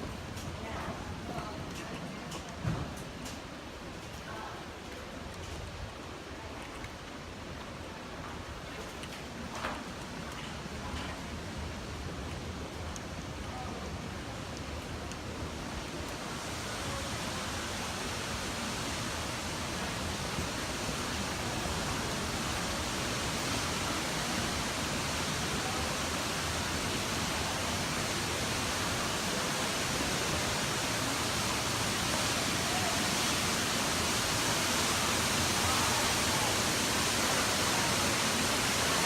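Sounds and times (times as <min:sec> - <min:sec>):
waterfall rushing water: 0:09.3 - 0:39.0.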